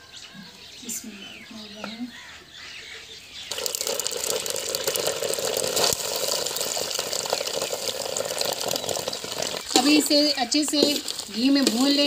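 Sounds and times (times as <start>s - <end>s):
milk sizzling in hot ghee: 3.5s - 12.0s.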